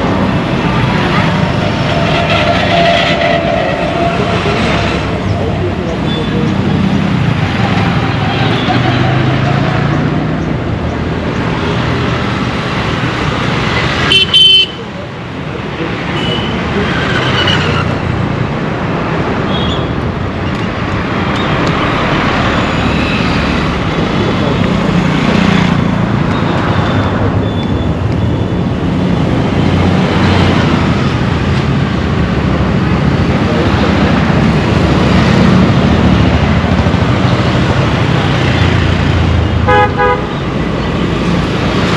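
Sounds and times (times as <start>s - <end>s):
road traffic: 0.0s - 41.9s
car horns honking: 1.1s - 5.2s, 14.0s - 14.8s, 39.5s - 40.5s.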